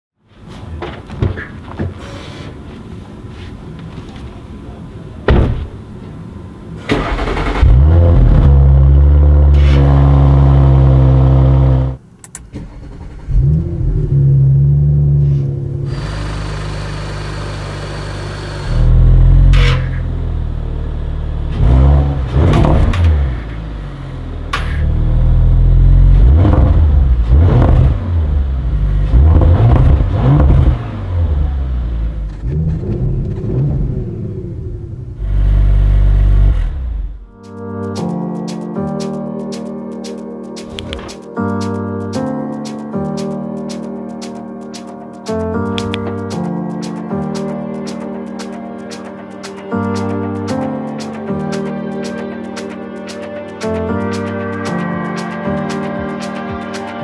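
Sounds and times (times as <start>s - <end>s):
car engine idling and revving: 6.3s - 37.4s.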